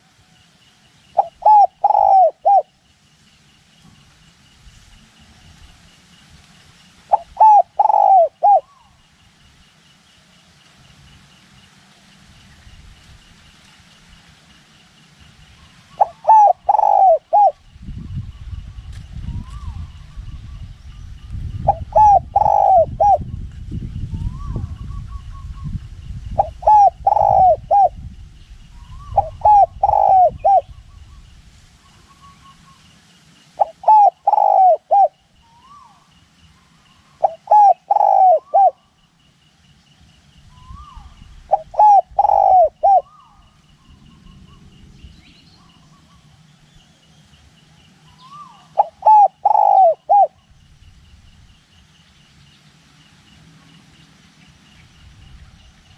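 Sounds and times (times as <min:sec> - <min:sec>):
dove cooing: 0:01.2 - 0:02.7, 0:07.1 - 0:09.0, 0:15.9 - 0:17.6, 0:21.6 - 0:23.3, 0:26.4 - 0:28.0, 0:28.8 - 0:30.7, 0:33.6 - 0:36.1, 0:37.2 - 0:38.9, 0:40.6 - 0:43.6, 0:48.1 - 0:50.4
wind rumbling on microphone: 0:12.3 - 0:14.2, 0:15.2 - 0:32.1, 0:40.0 - 0:46.9, 0:49.4 - 0:51.8, 0:54.7 - 0:55.9.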